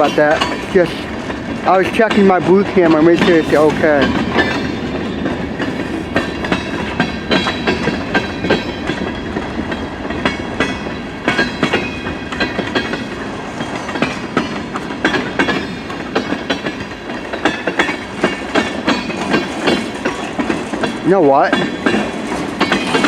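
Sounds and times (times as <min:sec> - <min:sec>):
freight train rumble: 0:00.0 - 0:23.0
train wheels clacking over rail joints: 0:00.0 - 0:23.0.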